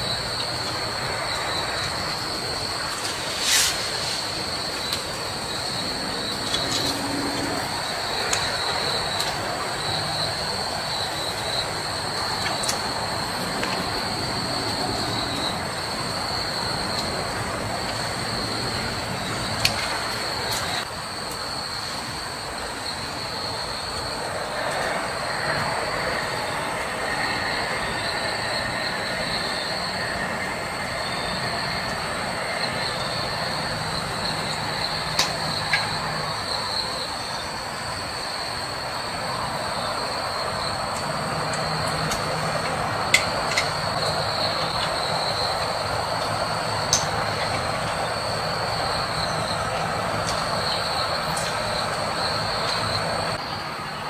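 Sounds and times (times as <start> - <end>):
insects droning: 0.0 - 54.0
broad even hiss: 1.6 - 7.9.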